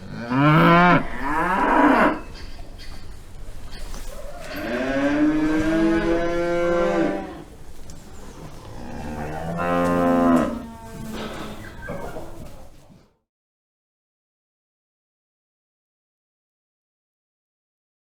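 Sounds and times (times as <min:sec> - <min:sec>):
cow mooing: 0:00.0 - 0:02.4, 0:04.4 - 0:07.6, 0:08.6 - 0:12.2.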